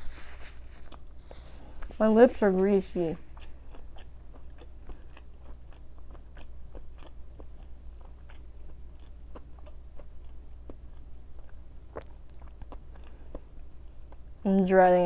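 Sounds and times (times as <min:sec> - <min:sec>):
chewing crunches: 0:03.2 - 0:14.4
wet mouth clicks: 0:11.4 - 0:13.5.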